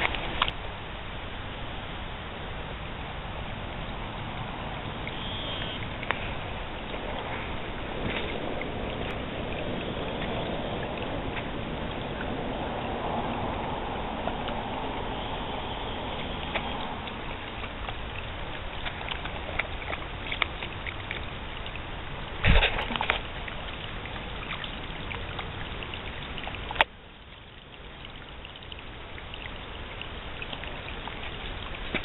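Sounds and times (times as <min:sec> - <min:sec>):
water drips: 0:02.3 - 0:32.0
rain falling: 0:05.8 - 0:27.1.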